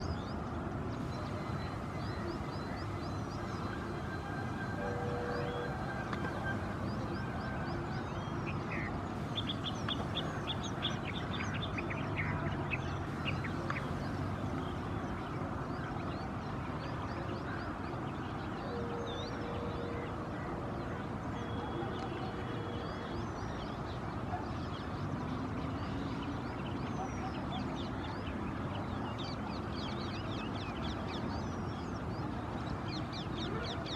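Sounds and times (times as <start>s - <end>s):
steady background noise: 0.0s - 33.9s
birds yelping calls: 1.0s - 15.1s.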